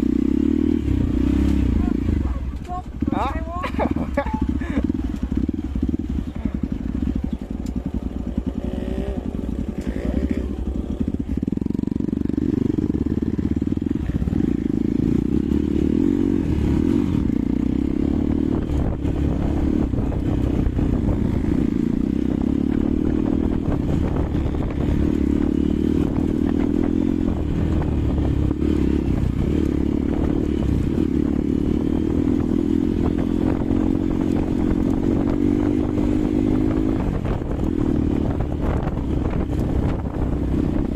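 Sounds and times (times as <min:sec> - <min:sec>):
motorcycle engine and exhaust: 0:00.0 - 0:40.9.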